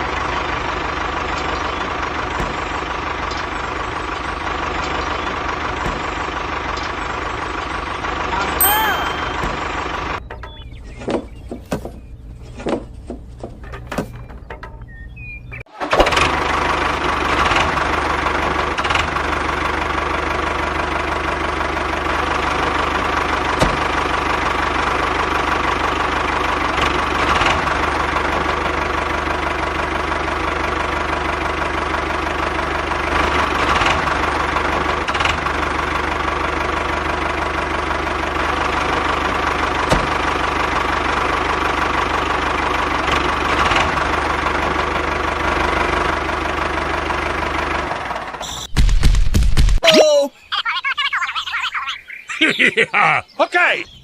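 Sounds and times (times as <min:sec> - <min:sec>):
engine running: 0:00.0 - 0:49.8
held tone: 0:08.5 - 0:10.0.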